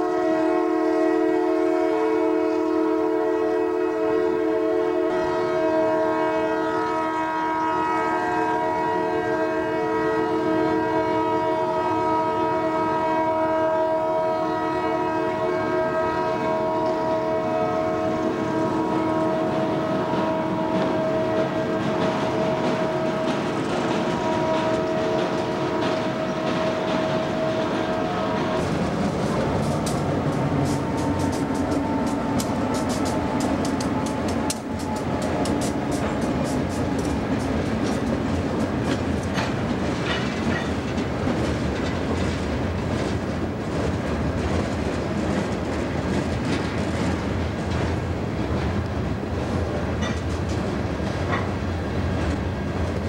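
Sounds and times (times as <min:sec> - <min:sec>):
rhythmic train wheel clatter: 0:18.1 - 0:53.0.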